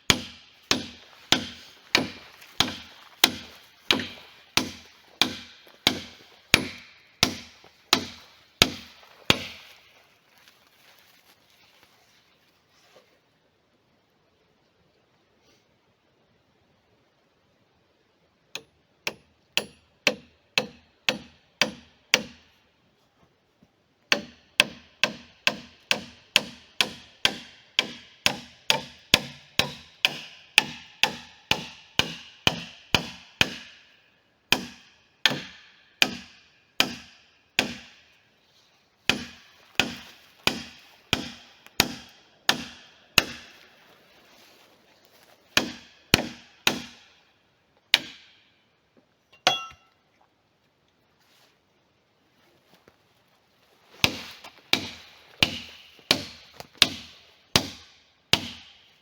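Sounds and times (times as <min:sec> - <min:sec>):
hammering on wood: 0:00.1 - 0:09.6, 0:18.6 - 0:22.5, 0:24.1 - 0:33.8, 0:34.5 - 0:38.0, 0:39.1 - 0:43.6, 0:45.6 - 0:47.1, 0:47.9 - 0:48.3, 0:54.0 - 0:58.7.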